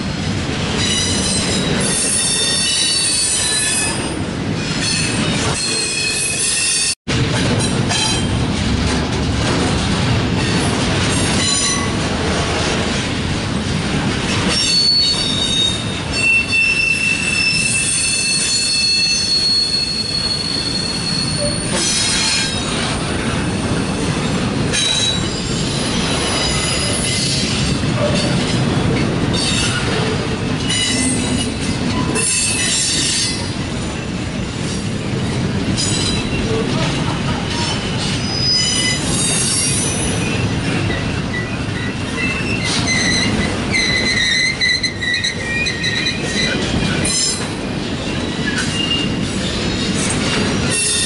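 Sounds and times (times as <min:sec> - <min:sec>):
freight wheels rumbling on rail: 0:00.0 - 0:51.0
high wheel squeal: 0:14.6 - 0:22.6, 0:38.2 - 0:47.4.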